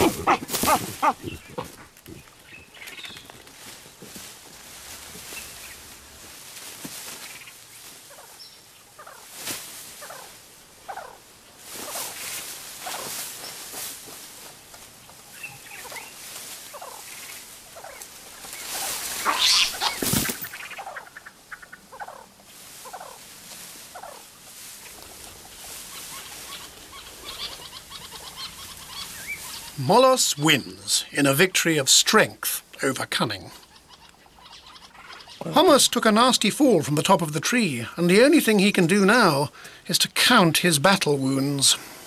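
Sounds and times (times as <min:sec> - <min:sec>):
baboons screaming and barking: 0:00.0 - 0:02.4, 0:09.9 - 0:12.2, 0:17.7 - 0:31.1, 0:33.5 - 0:35.8
rustling and cracking branches: 0:00.0 - 0:30.2.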